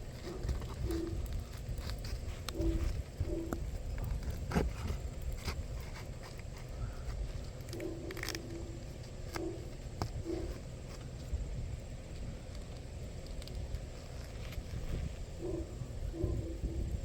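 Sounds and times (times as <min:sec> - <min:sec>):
wind rumble: 0:00.0 - 0:08.8, 0:09.4 - 0:17.0
dove cooing: 0:00.3 - 0:01.3, 0:02.5 - 0:03.8, 0:15.4 - 0:17.0.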